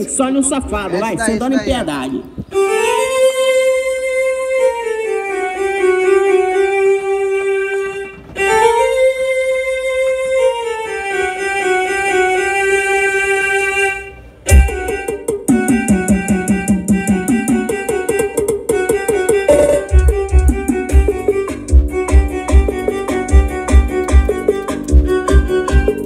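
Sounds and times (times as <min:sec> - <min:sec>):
string-like melody: 0:02.5 - 0:26.0
heavy bass hit: 0:19.5 - 0:22.8
fast repeating beat: 0:19.5 - 0:26.0.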